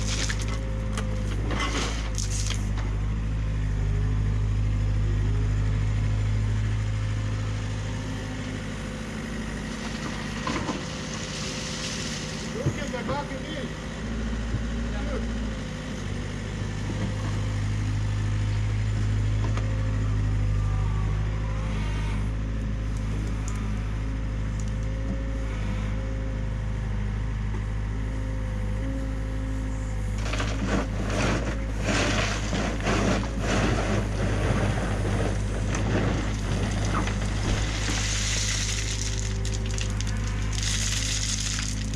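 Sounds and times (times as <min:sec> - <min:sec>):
rock and soil scraping: 0:00.0 - 0:02.8, 0:30.1 - 0:41.9
excavator diesel engine: 0:00.0 - 0:41.9.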